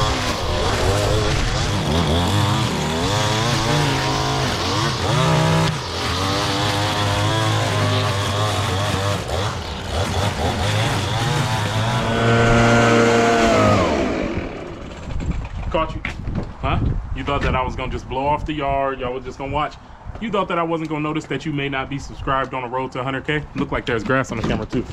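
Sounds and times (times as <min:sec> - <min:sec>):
leaf blower engine revving: 0:00.0 - 0:15.3.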